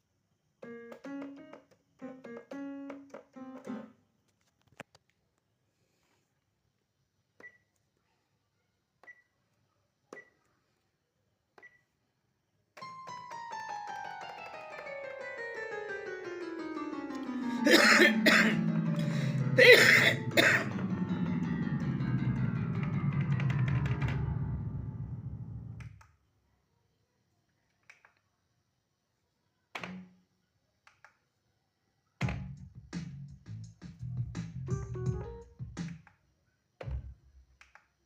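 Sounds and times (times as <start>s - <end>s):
synthesizer tone falling in pitch: 13.2s - 25.9s.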